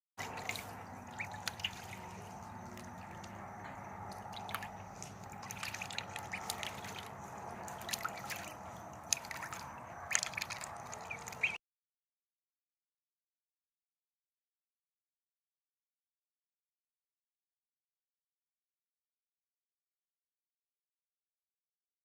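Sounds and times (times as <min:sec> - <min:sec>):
ducks splashing in shallow water: 0:00.2 - 0:11.6.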